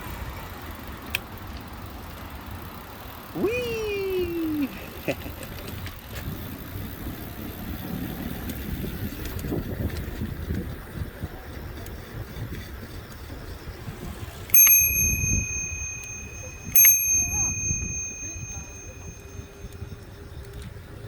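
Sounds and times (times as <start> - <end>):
low rumble of moving bike: 0.0 - 21.0
bicycle bell ding: 14.5 - 19.8.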